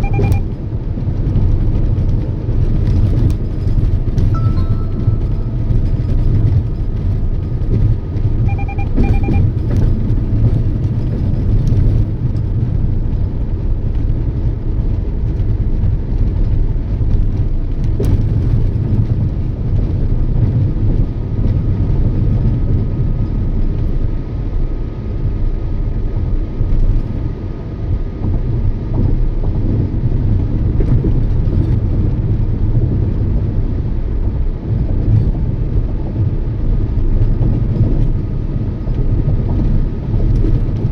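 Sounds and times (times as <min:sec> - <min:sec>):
short beeps: 0:00.0 - 0:00.5, 0:04.3 - 0:06.4, 0:08.4 - 0:09.5
car road and engine rumble: 0:00.0 - 0:40.9.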